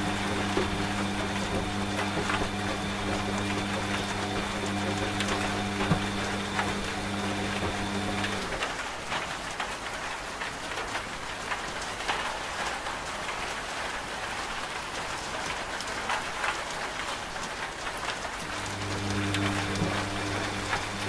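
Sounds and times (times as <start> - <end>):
rain drops on hard surface: 0.0 - 21.0.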